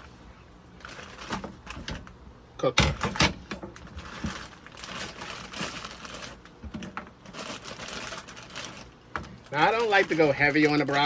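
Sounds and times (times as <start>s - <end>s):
plastic bag crinkling: 0.8s - 2.1s, 3.8s - 11.0s.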